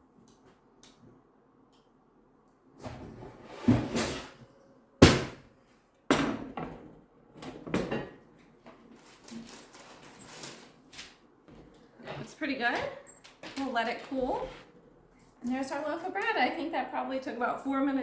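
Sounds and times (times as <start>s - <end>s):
kitchen knocks and scrapes: 2.8s - 5.4s, 6.1s - 9.4s.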